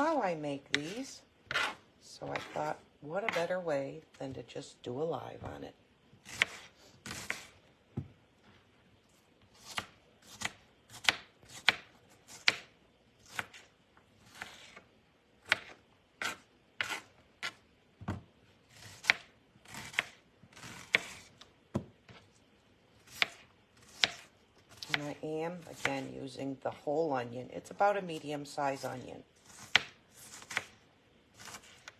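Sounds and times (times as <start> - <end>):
knife chopping on cutting board: 0.7 - 2.6, 6.2 - 8.1, 9.6 - 12.7, 15.4 - 18.2, 18.8 - 22.2, 23.1 - 25.2, 29.4 - 30.7.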